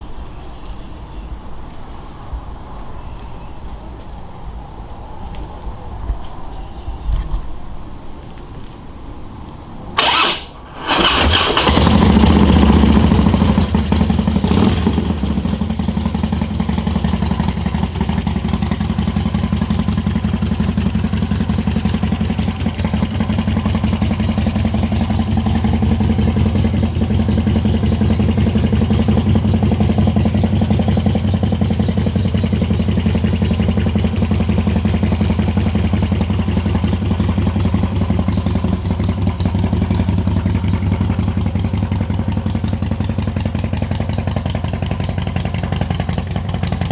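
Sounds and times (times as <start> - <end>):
motorcycle engine idling: 10.0 - 46.9.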